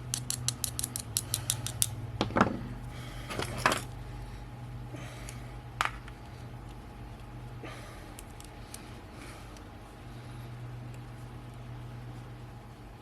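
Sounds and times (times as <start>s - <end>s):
small metal parts handled: 0.0s - 2.6s, 3.2s - 4.0s
steady low hum: 0.0s - 13.0s.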